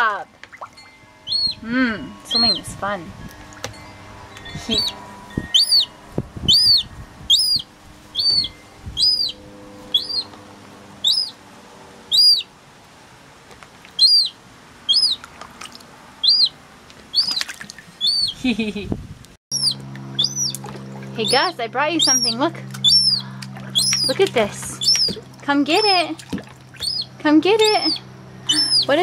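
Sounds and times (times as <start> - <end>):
gull chick peeping: 0.4 - 1.6, 4.4 - 10.4, 11.0 - 11.4, 12.1 - 12.5, 13.9 - 15.2, 16.2 - 18.4, 19.5 - 26.1, 26.8 - 29.0.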